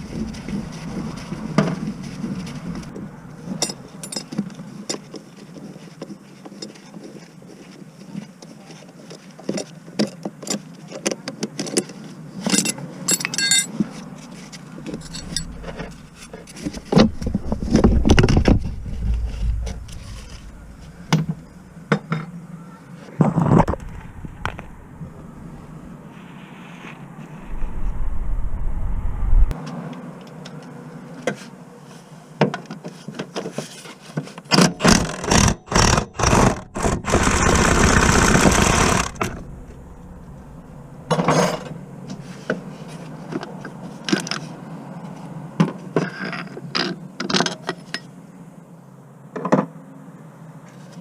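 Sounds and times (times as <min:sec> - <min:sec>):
metal tools clinking and knocking: 0:03.6 - 0:04.4, 0:12.5 - 0:13.8, 0:14.9 - 0:16.4.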